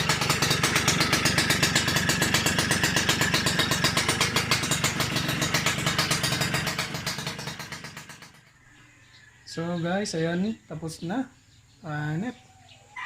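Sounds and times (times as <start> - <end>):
two-stroke engine idling: 0.0 - 8.7.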